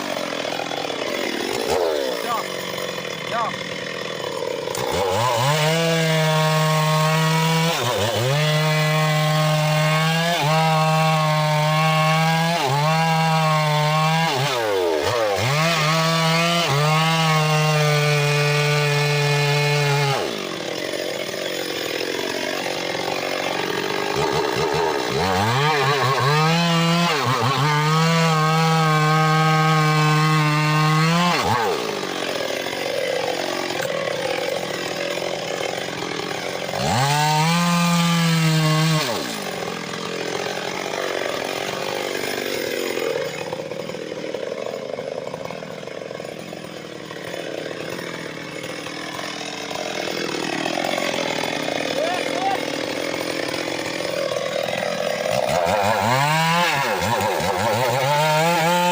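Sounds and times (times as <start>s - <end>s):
engine-driven circular saw cutting log: 0.0s - 58.9s.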